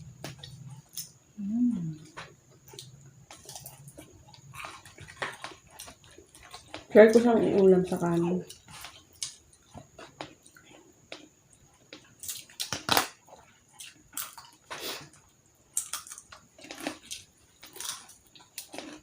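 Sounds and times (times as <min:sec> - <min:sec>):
wet chewing and smacking: 0:02.1 - 0:06.9, 0:07.6 - 0:19.0.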